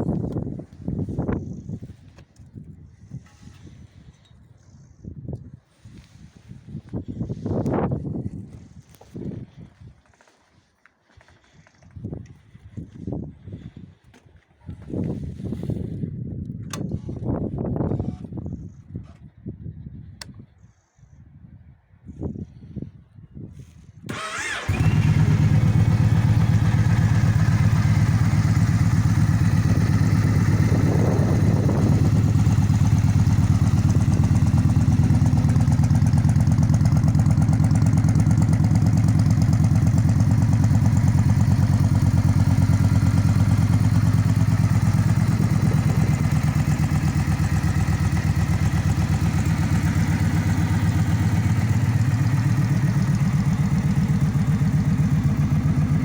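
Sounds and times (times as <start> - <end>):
motorcycle engine starting and idling: 24.1 - 56.0.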